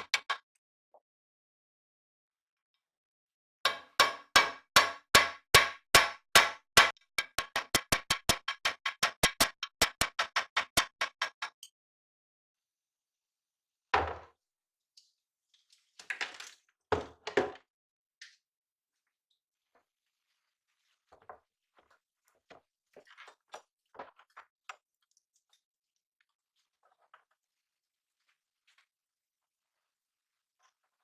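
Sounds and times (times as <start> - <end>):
scattered knocks and clatter: 6.8 - 11.6.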